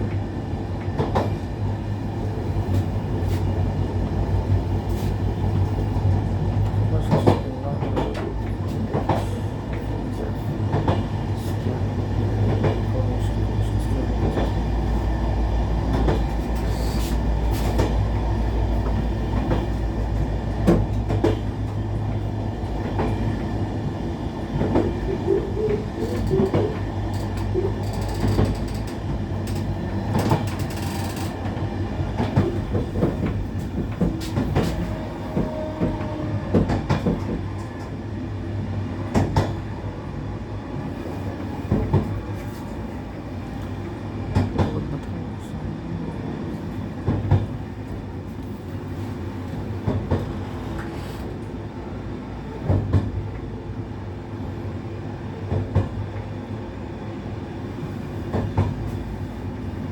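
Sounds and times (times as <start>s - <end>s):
train rumble inside carriage: 0.0s - 59.9s
wheels clicking on track: 24.6s - 31.6s.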